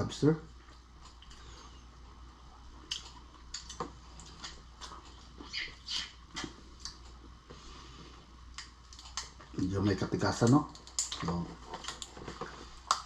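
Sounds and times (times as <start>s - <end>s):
lobster shell crackling and chewing: 8.5s - 9.4s, 10.7s - 12.2s.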